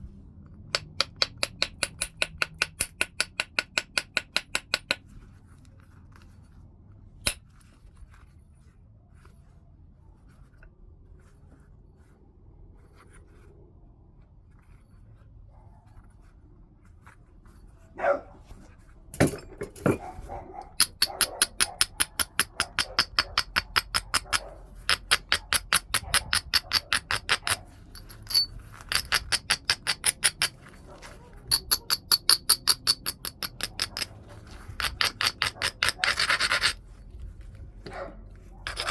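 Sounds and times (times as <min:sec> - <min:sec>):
stone click: 0:00.7 - 0:05.0, 0:20.7 - 0:36.8, 0:38.6 - 0:38.9
stone scraping on stone: 0:19.2 - 0:38.9.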